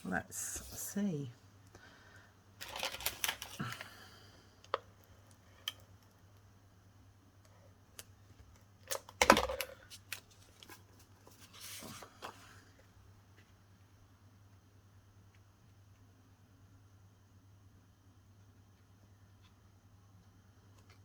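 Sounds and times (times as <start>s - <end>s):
paper rustle: 2.6s - 3.8s, 9.9s - 12.7s.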